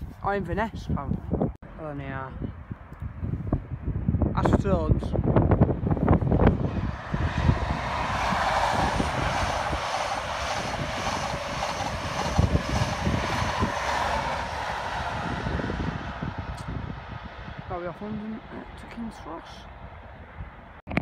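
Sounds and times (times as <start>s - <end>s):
diesel engine of passing train: 5.9s - 19.8s
train wheels on rails: 6.8s - 16.7s.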